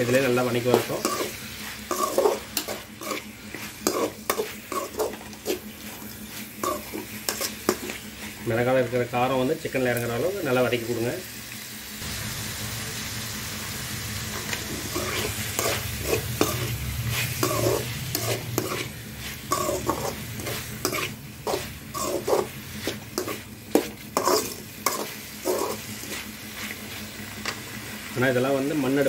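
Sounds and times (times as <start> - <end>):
metal spatula scraping pan: 0.0 - 8.4, 14.4 - 27.0
food sizzling in oil: 0.0 - 29.0.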